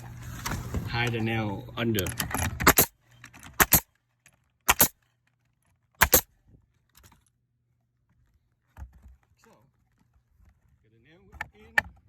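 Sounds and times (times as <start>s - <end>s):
nail gun firing: 2.6s - 2.9s, 3.5s - 3.9s, 4.7s - 5.0s, 6.0s - 6.3s.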